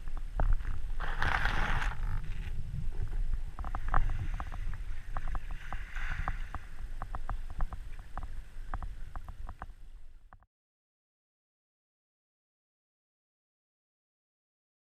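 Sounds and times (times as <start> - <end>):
water low rumble: 0.0 - 10.4.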